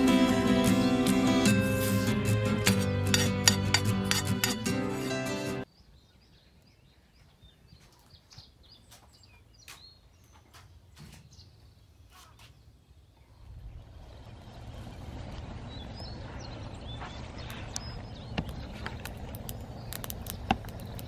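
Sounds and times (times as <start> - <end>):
small birds chirping: 5.6 - 21.0
sharp clicks: 17.5 - 21.0.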